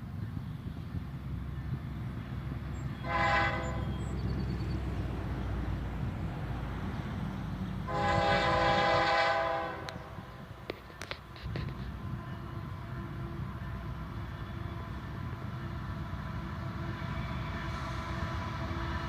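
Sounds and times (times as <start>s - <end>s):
freight train rumble: 0.0s - 19.0s
locomotive air horn blasts: 3.0s - 4.0s, 7.8s - 10.3s, 11.4s - 19.0s.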